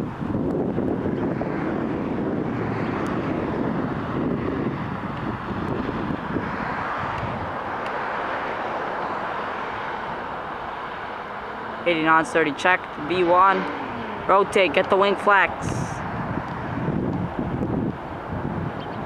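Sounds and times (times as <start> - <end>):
jet engines at takeoff thrust: 0.0 - 11.3.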